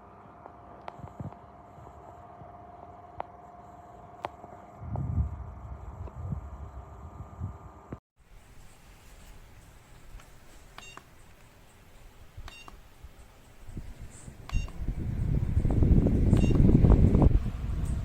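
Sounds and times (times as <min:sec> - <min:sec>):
fan air rushing on microphone: 0:03.4 - 0:11.4, 0:12.0 - 0:18.0.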